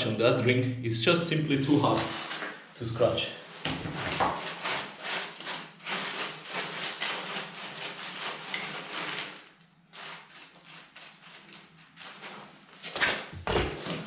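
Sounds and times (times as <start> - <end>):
object scraping on concrete: 3.6 - 14.0.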